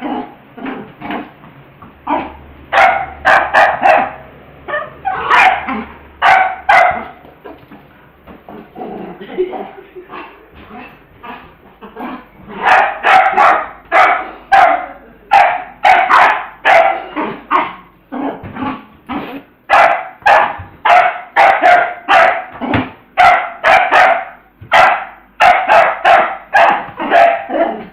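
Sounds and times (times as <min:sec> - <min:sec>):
dog barking: 0:02.2 - 0:07.2, 0:12.5 - 0:17.8, 0:19.7 - 0:22.6, 0:23.2 - 0:27.9.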